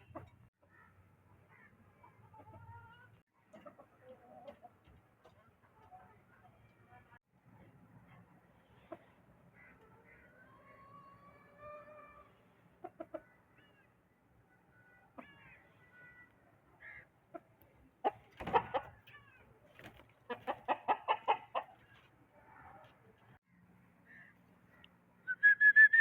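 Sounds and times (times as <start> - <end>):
chickens clucking: 0.0 - 0.5, 2.0 - 6.2, 11.5 - 13.8, 17.2 - 23.4.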